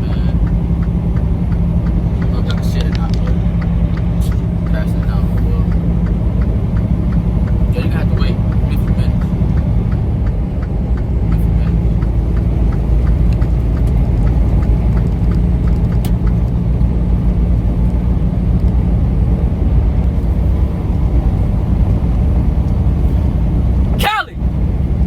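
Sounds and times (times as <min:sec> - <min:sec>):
light regular ticking: 0:00.0 - 0:18.8
truck engine and road rumble: 0:00.0 - 0:25.0.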